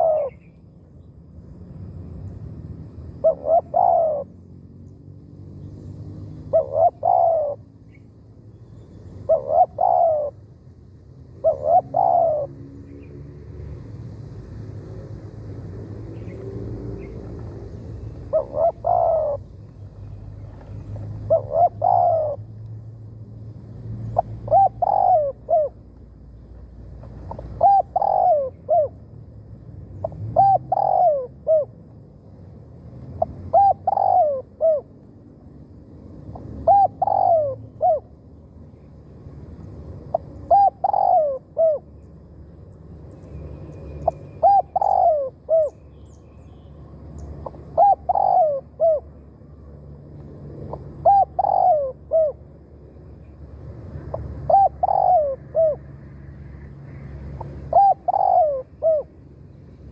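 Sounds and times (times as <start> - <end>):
dove cooing: 0.0 - 0.5, 3.2 - 4.4, 6.4 - 7.7, 9.1 - 10.5, 11.4 - 13.0, 16.1 - 22.5, 24.0 - 25.9, 27.2 - 29.0, 30.0 - 31.8, 33.2 - 35.0, 36.3 - 38.2, 40.0 - 41.9, 44.0 - 45.8, 47.4 - 49.1, 50.6 - 52.4, 54.1 - 55.9, 57.3 - 59.2.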